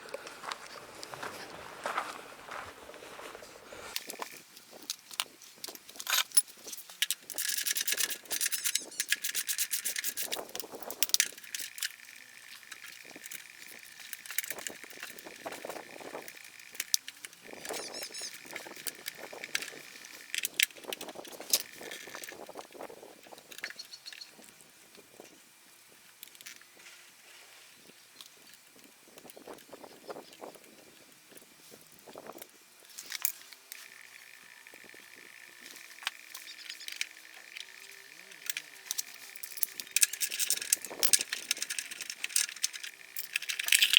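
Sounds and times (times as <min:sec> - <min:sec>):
tools and metal parts rattling: 0:03.9 - 0:22.6, 0:34.8 - 0:43.9.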